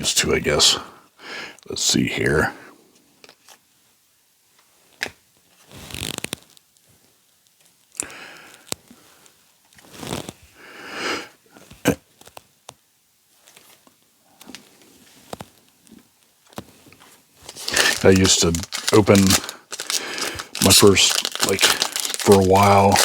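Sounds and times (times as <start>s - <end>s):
foil wrapper tearing and crinkling: 17.4s - 23.0s.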